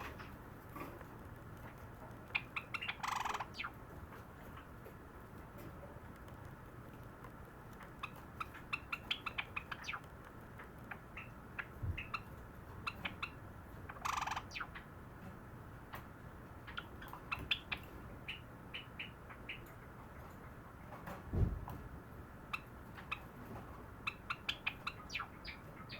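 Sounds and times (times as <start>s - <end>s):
sparrow singing clicks and pipes: 1.6s - 5.0s, 7.6s - 21.2s, 22.4s - 25.9s.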